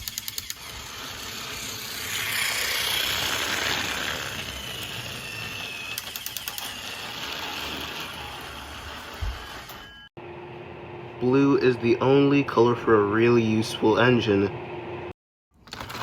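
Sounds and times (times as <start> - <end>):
quick run of clicks: 0.0 - 0.7, 5.9 - 6.8
toy train rattly mechanical whir: 0.0 - 10.1.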